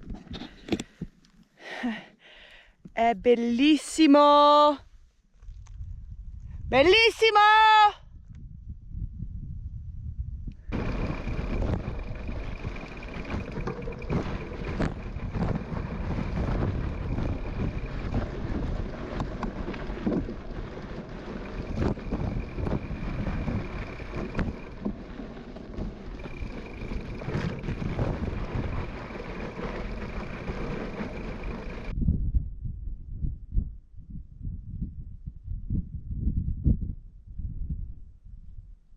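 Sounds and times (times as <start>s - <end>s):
wind buffeting microphone: 5.4s - 7.2s, 8.0s - 38.8s
bike tyres crunching on gravel: 10.7s - 31.9s.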